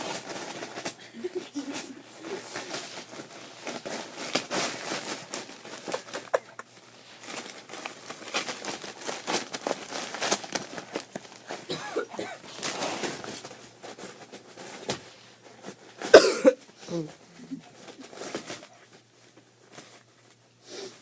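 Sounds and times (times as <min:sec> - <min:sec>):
wrapping paper rustling: 0:00.0 - 0:21.0
loud cough-like sound: 0:11.7 - 0:12.4, 0:16.0 - 0:16.6.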